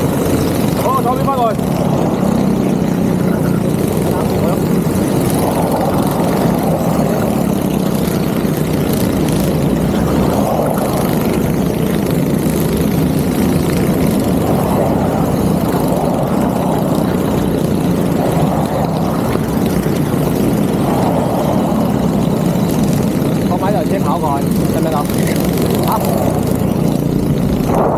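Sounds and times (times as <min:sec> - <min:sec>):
go-kart engines running: 0:00.0 - 0:27.9.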